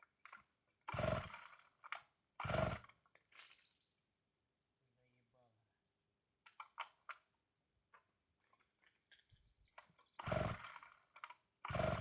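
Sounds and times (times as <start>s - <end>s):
chainsaw pull-start cranking: 0.2s - 3.0s, 10.0s - 12.0s.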